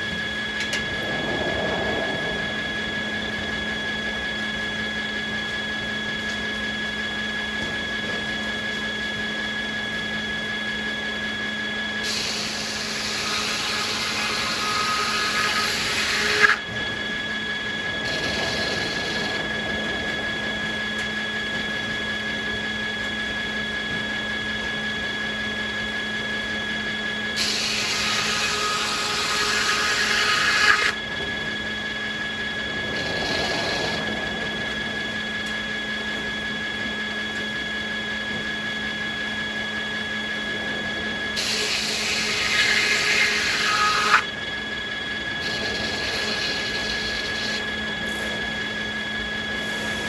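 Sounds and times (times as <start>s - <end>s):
circular saw whining: 0.0s - 50.0s
saw cutting through wood: 12.0s - 16.6s, 18.0s - 19.4s, 27.4s - 31.0s, 33.0s - 34.0s, 41.4s - 44.3s, 45.4s - 48.6s.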